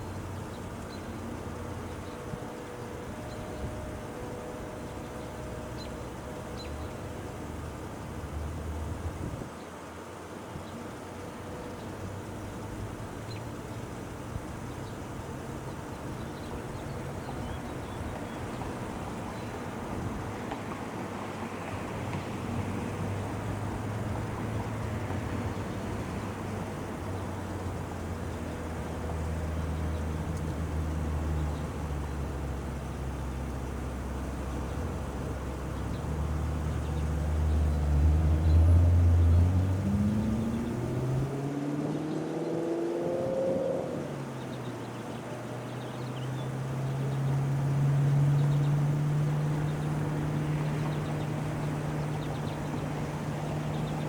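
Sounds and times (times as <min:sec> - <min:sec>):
outdoor background noise: 0:00.0 - 0:54.0
vehicle engine accelerating: 0:16.4 - 0:54.0.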